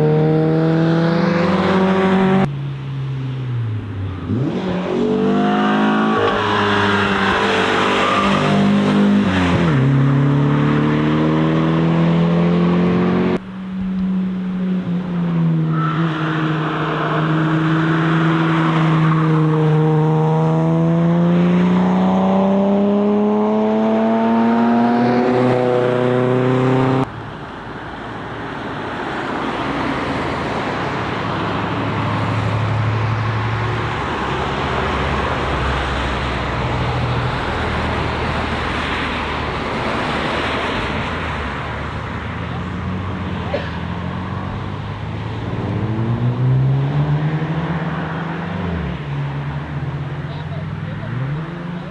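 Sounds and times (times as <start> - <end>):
car engine accelerating: 0.0 - 27.1
car passing: 0.0 - 51.9
road noise: 0.0 - 51.9.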